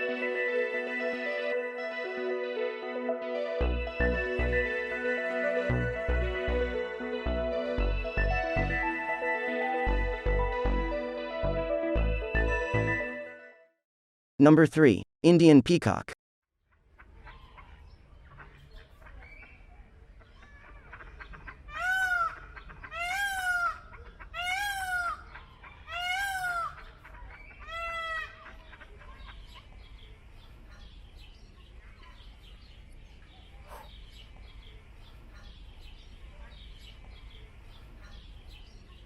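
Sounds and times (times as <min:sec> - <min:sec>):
peacock calling loudly: 0:16.7 - 0:29.7.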